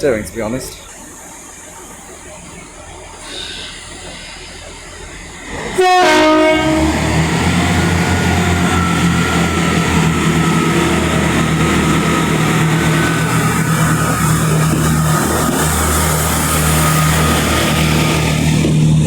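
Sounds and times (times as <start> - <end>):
train engine running: 0.0 - 19.0
two-tone train horn: 5.7 - 15.9.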